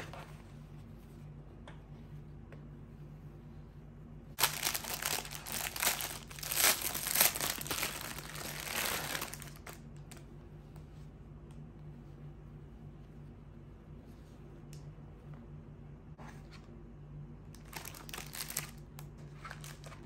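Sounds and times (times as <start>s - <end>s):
crinkling rustling noise: 4.4s - 10.3s, 17.6s - 20.0s.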